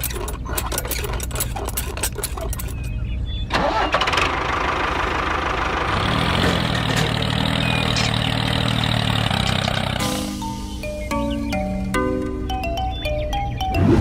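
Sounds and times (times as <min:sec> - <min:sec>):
engine idling: 0:00.0 - 0:10.6.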